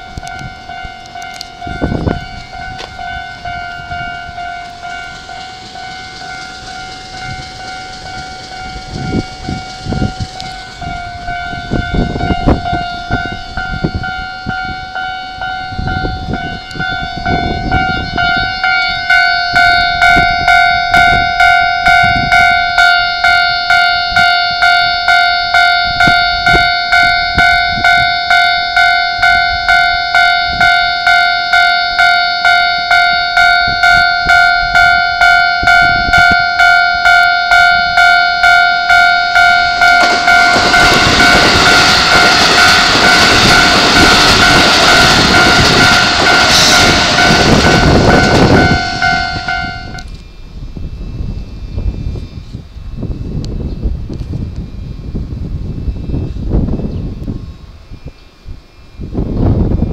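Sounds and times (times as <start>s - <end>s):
train wheels clattering: 0.0s - 13.5s, 39.3s - 50.2s
level crossing alarm ringing: 0.0s - 50.2s.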